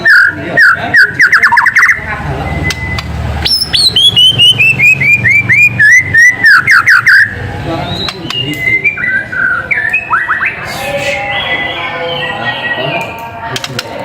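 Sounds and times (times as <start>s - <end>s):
bird whistling song: 0.0s - 13.2s.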